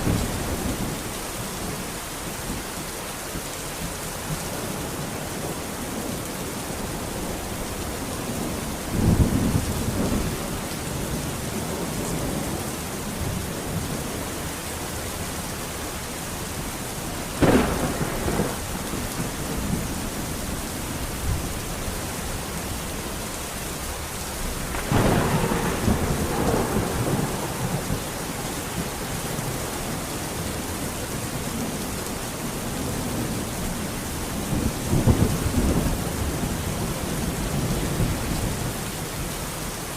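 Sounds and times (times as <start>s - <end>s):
steady rain: 0.0s - 39.9s
thunder rumbling and cracking: 6.4s - 15.0s, 17.0s - 23.2s, 23.8s - 39.3s.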